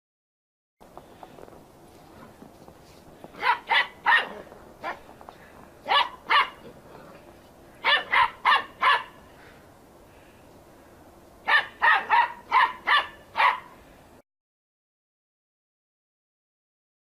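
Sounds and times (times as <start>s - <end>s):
dog barking: 3.4s - 5.0s, 5.8s - 6.7s, 7.8s - 9.2s, 11.4s - 13.8s.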